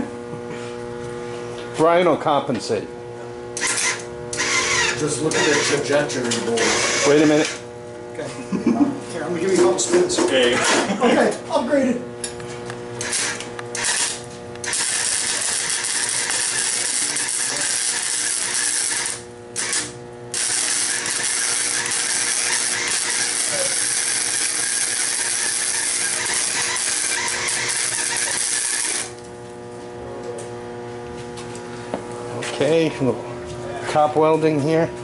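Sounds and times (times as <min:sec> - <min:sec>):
arc welding crackle: 0:03.6 - 0:07.7, 0:13.0 - 0:29.6.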